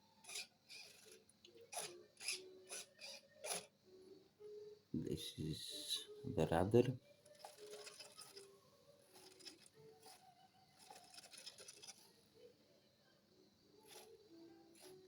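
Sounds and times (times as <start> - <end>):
small servo whirring: 0.0 - 3.9, 7.1 - 15.0.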